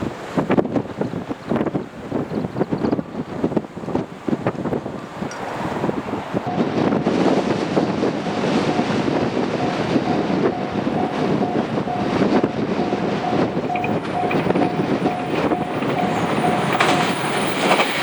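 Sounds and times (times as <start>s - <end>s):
passing train rumble: 0.0s - 18.0s
level crossing alarm dinging: 6.4s - 18.0s.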